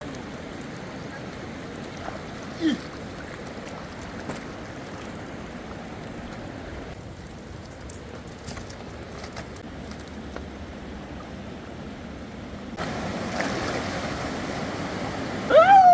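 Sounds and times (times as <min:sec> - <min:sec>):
river water rushing: 0:12.7 - 0:15.9.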